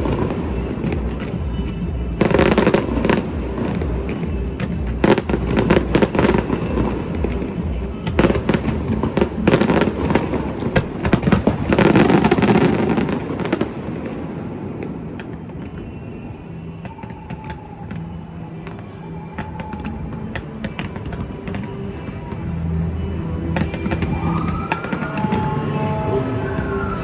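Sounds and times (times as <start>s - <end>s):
fireworks bangs and crackles: 0.0s - 27.0s
music: 0.0s - 27.0s.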